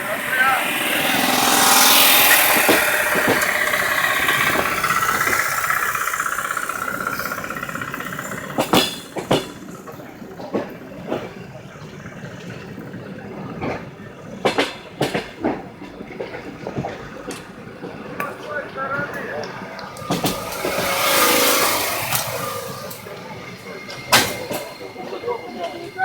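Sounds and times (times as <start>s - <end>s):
vehicle passing: 0.0s - 10.2s, 16.4s - 26.0s.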